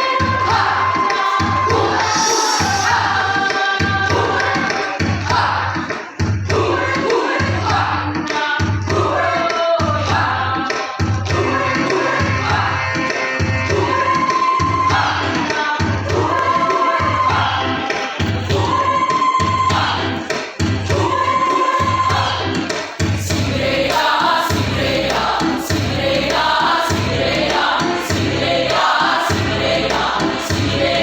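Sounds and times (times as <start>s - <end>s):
choir singing: 0.0s - 5.8s, 6.5s - 10.7s, 13.7s - 20.1s, 23.2s - 31.0s
music accompaniment: 0.0s - 31.0s
steady low beat: 23.0s - 31.0s.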